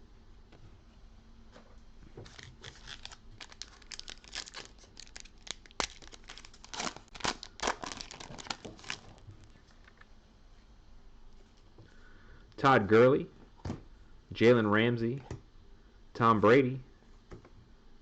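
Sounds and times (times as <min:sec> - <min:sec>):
foil wrapper tearing and crinkling: 0:02.2 - 0:09.5.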